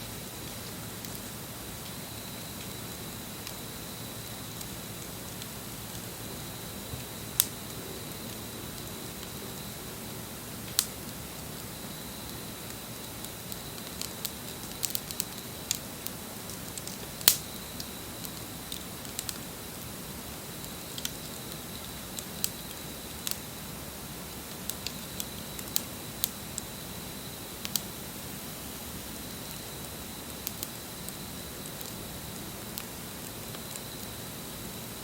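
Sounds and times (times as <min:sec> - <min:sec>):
wood fire crackling: 0:00.1 - 0:35.0
sharp pops from fire: 0:06.9 - 0:09.4, 0:10.0 - 0:26.8, 0:27.4 - 0:34.1.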